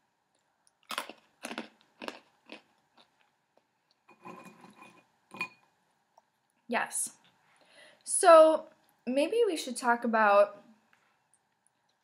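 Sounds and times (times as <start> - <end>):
pretzels crunching: 0.7 - 3.5.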